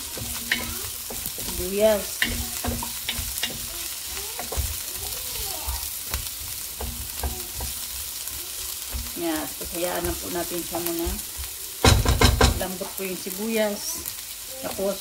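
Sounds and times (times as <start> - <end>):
spatula scraping a pot: 0.0 - 4.9
onion sizzling in hot oil: 0.0 - 15.0.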